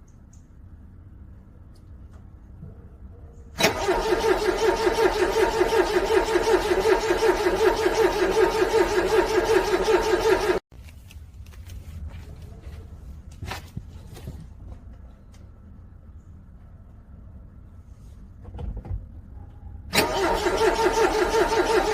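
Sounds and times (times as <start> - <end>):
car starter cranking engine: 3.6 - 10.6, 19.9 - 21.9.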